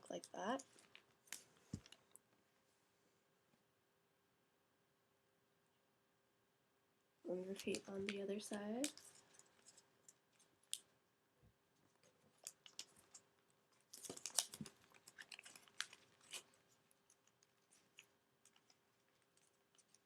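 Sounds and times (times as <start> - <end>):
faint steady hum: 0.0 - 20.0
paper crinkling and rustling: 7.5 - 10.5, 11.9 - 20.0.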